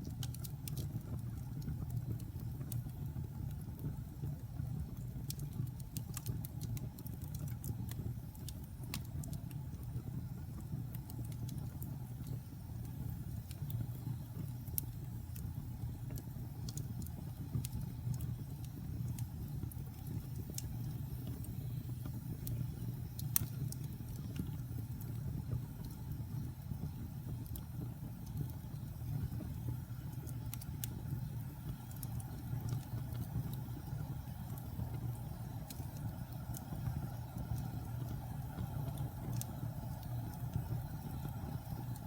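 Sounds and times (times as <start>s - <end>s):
fire crackling and popping: 0.0s - 42.0s
fire flame rumble: 0.0s - 42.0s.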